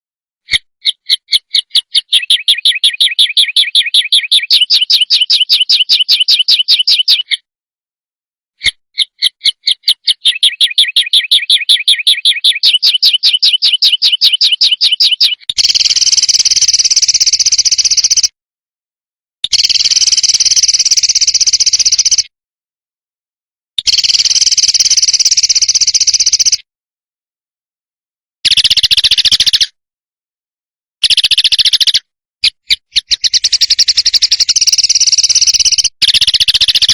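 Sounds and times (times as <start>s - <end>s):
songbird rapid chirps: 0.5s - 7.5s, 8.6s - 18.4s, 19.4s - 22.3s, 23.8s - 26.7s, 28.5s - 29.8s, 31.0s - 36.9s
harsh buzzing bird rattle: 15.6s - 18.3s, 19.5s - 22.3s, 23.8s - 26.6s, 33.0s - 36.9s.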